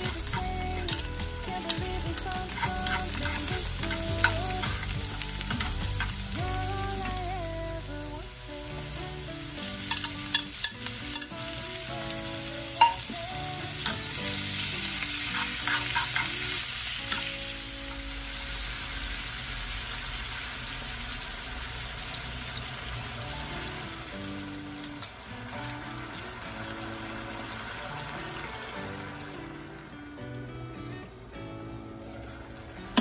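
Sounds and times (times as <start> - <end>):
utensils clicking against pan: 0.0 - 7.2, 9.8 - 11.4, 12.8 - 13.1, 15.3 - 17.3, 24.8 - 25.2
onions and beef sizzling: 0.0 - 30.5, 31.1 - 33.0.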